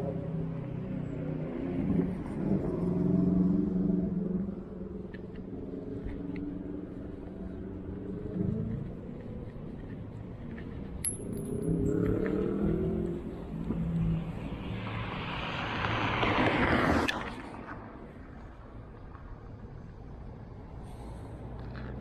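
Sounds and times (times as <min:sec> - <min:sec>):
car engines running: 0:00.0 - 0:22.0.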